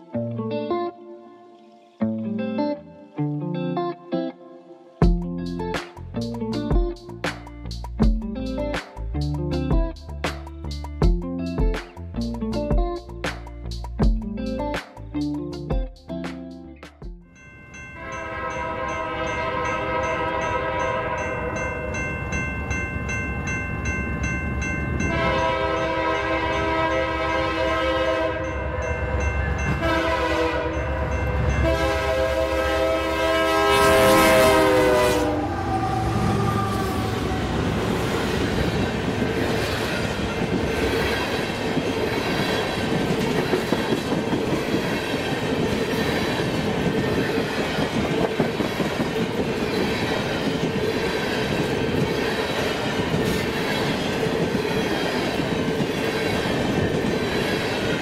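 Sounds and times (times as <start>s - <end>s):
train horn blasts: 18.0s - 21.6s, 25.0s - 37.8s.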